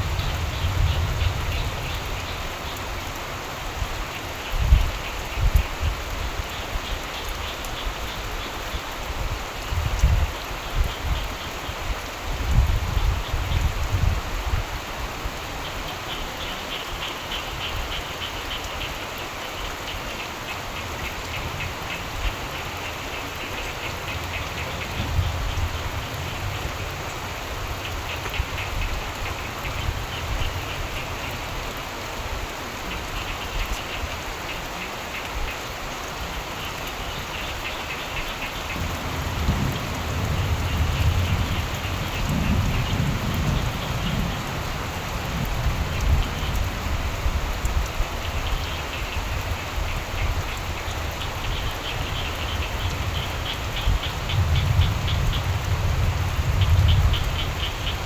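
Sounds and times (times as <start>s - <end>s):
low rumble of thunder: 0.0s - 2.6s, 24.0s - 31.0s, 38.6s - 58.0s
steady rain: 0.0s - 58.0s
frogs trilling: 15.6s - 31.8s, 32.8s - 47.4s, 48.0s - 58.0s.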